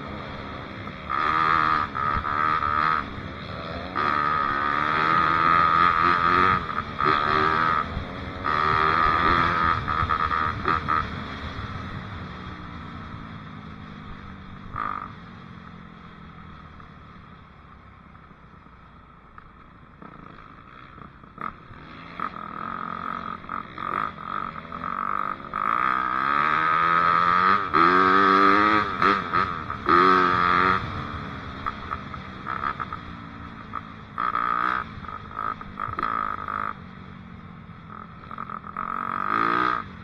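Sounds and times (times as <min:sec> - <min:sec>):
dirt bike engine revving: 0:00.0 - 0:11.6, 0:21.4 - 0:36.8, 0:38.1 - 0:40.0.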